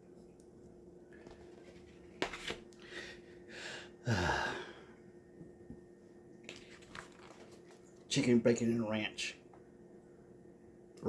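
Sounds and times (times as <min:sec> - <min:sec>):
man breathing: 0:02.8 - 0:05.0
man sighing loudly: 0:03.6 - 0:04.9.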